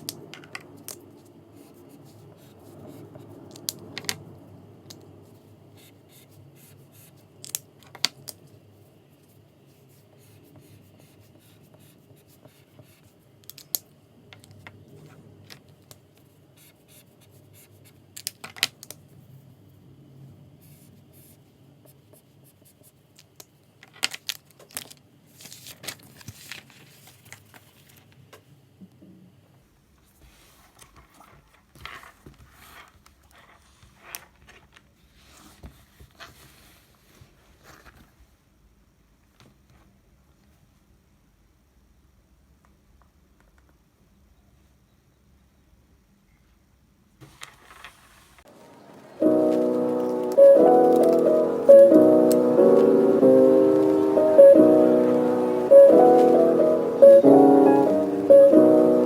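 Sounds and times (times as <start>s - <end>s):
low room hiss: 0.0s - 59.0s
paper rustling: 24.0s - 28.2s, 30.2s - 38.3s, 47.2s - 48.4s, 49.2s - 51.6s.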